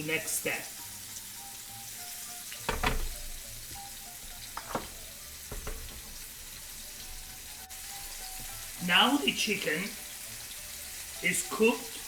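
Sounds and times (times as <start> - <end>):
food sizzling in a pan: 0.0 - 12.0
light knocks: 2.7 - 3.4, 4.6 - 6.2.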